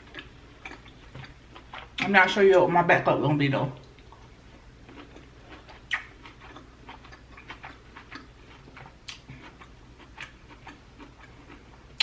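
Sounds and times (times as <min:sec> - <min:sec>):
wet chewing clicks: 0:00.0 - 0:02.1, 0:04.9 - 0:12.0.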